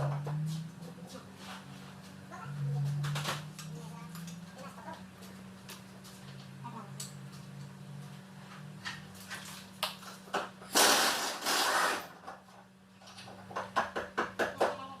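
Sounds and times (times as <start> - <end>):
loud rushing scrape: 10.7 - 12.2.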